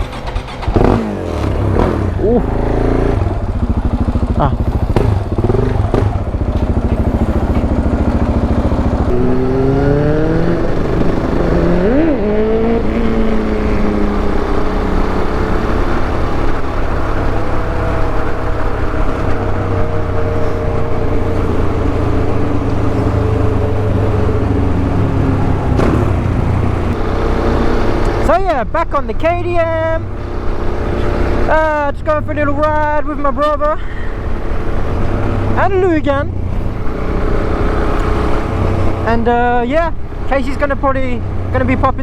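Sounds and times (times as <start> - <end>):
constant low rumble: 0.0 - 9.3, 27.8 - 42.0
motorcycle engine revving: 0.0 - 42.0.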